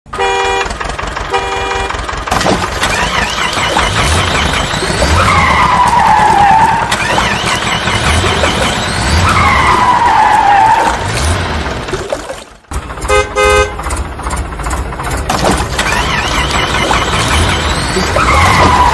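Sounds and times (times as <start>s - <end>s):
vehicle horn toots: 0.1s - 2.1s, 13.0s - 13.9s
cartoon vehicle sound effects: 0.1s - 18.9s.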